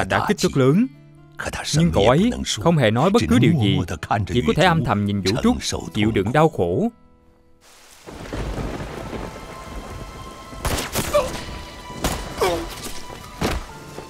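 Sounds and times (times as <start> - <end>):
film score music sustained notes: 0.0 - 14.0
heavy rain pouring: 7.6 - 14.0
low rumbling thunder: 8.1 - 10.7
sharp cracks: 10.6 - 13.7.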